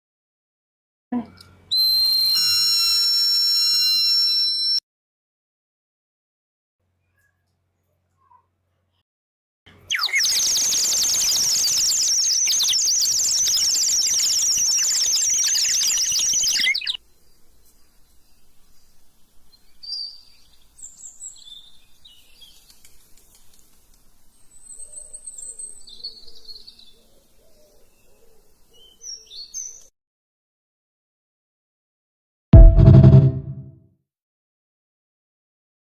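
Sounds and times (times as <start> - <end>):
bird whistle warbling trill: 1.7 - 4.8, 9.9 - 17.0
whistle chirps and glides: 1.8 - 4.8, 9.9 - 16.9.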